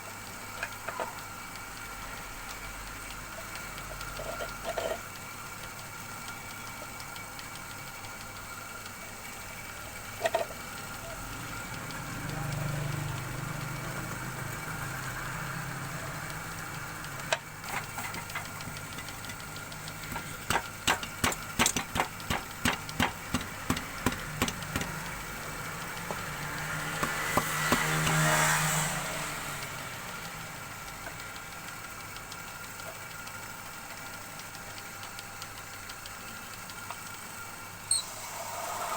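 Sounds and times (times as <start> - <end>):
lathe motor humming: 0.2 - 38.9
sharp clicks: 16.2 - 28.6.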